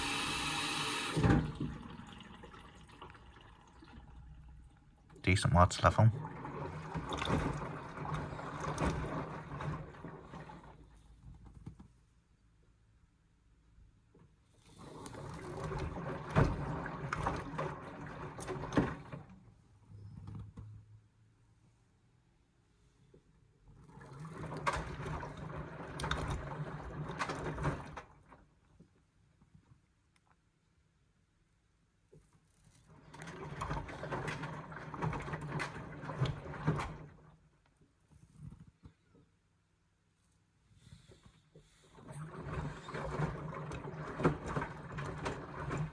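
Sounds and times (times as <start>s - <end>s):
wet laundry swishing and clattering: 32.5s - 37.3s, 41.7s - 45.9s.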